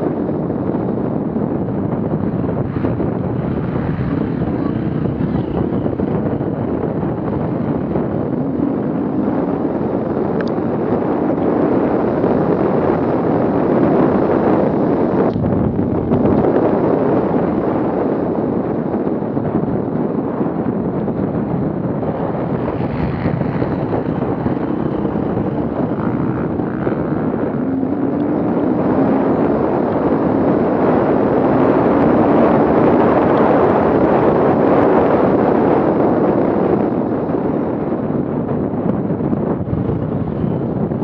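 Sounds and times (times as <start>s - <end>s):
wind buffeting microphone: 0.0s - 41.0s
vehicle engine running: 0.8s - 12.9s, 20.7s - 34.8s.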